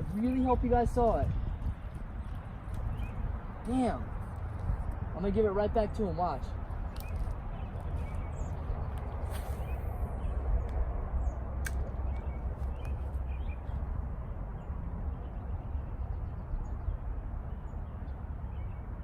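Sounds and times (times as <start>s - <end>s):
wind rumble on microphone: 0.0s - 19.0s
sharp click: 11.6s - 12.3s.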